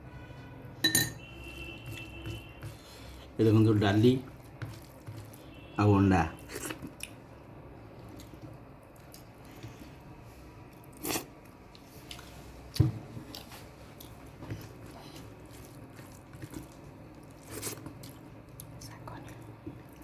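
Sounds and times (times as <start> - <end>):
person chewing food: 4.3 - 5.5, 6.4 - 7.3, 7.9 - 10.0, 10.6 - 20.0.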